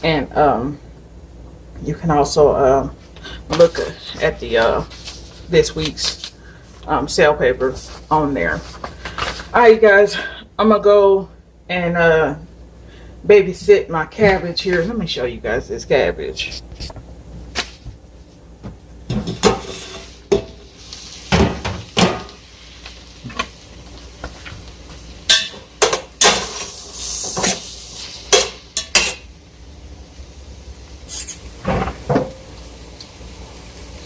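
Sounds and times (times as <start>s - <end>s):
utensils clanking on cooking pot: 19.1s - 20.6s, 25.3s - 26.7s, 28.3s - 29.3s
short hiss: 31.1s - 31.5s.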